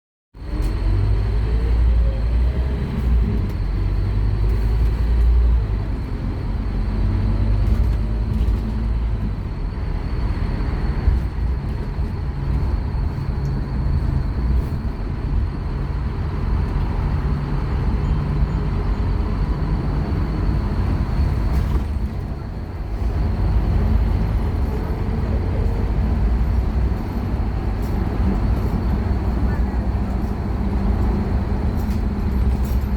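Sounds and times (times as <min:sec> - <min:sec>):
bus diesel engine pulling hard: 0:00.4 - 0:32.9.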